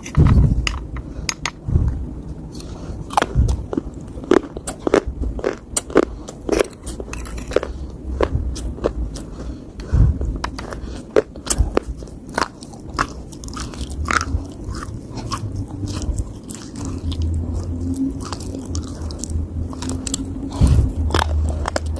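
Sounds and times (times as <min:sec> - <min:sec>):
low thuds: 0:00.2 - 0:00.7, 0:01.6 - 0:02.2, 0:20.5 - 0:21.2
chewing crumbly clay: 0:02.5 - 0:21.9.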